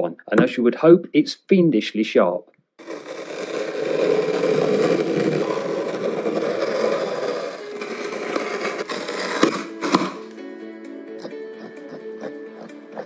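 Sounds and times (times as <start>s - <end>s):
tool scraping and grinding: 2.8s - 10.4s
music: 5.4s - 13.0s.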